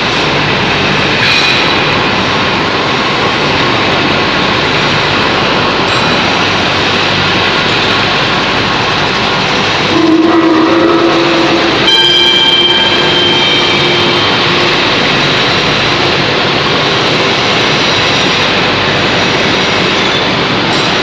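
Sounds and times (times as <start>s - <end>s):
industrial machine rushing noise: 0.0s - 21.0s.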